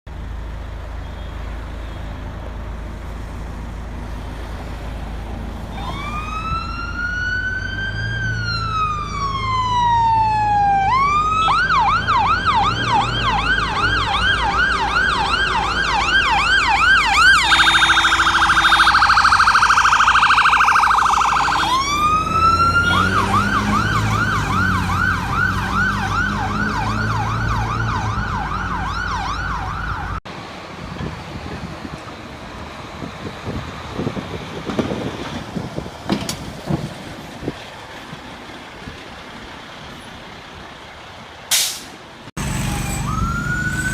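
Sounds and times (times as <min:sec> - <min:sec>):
emergency vehicle siren: 0:05.3 - 0:30.3, 0:42.3 - 0:43.9.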